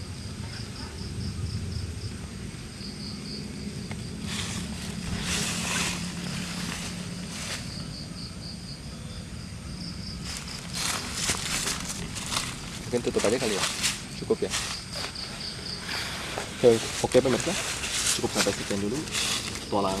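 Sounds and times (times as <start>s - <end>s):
night insects chirping: 0.0s - 20.0s
rustling: 4.0s - 8.0s, 10.2s - 20.0s.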